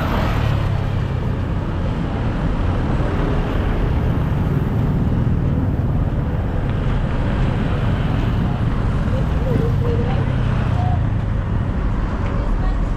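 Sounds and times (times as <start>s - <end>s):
city street traffic: 0.0s - 12.9s.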